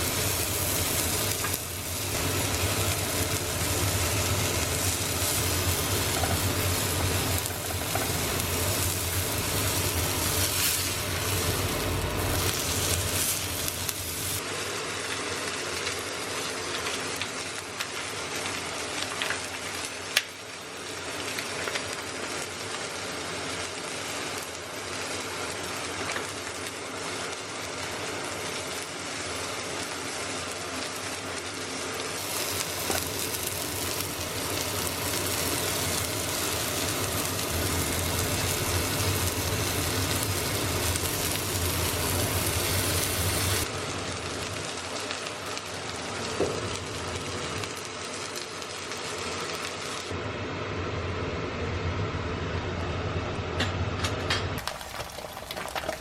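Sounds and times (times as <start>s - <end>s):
food sizzling in a pan: 0.0s - 50.2s, 54.6s - 56.0s.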